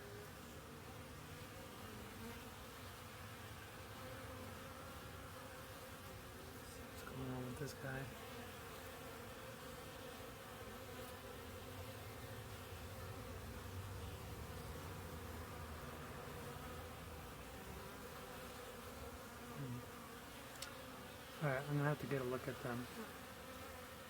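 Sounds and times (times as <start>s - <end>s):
honeybees buzzing: 0.0s - 24.0s.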